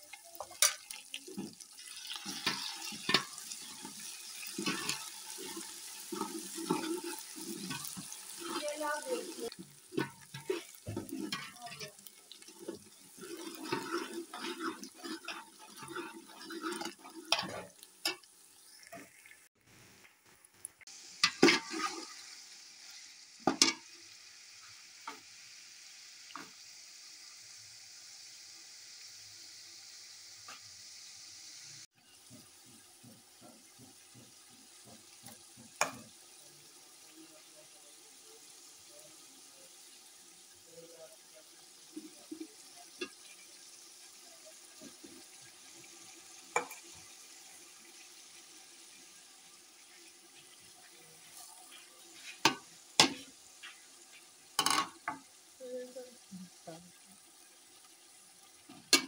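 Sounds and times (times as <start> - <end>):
chicken sizzling in a pot: 0.0 - 59.0
metal spoon scraping a pot: 0.4 - 18.2, 21.2 - 22.1.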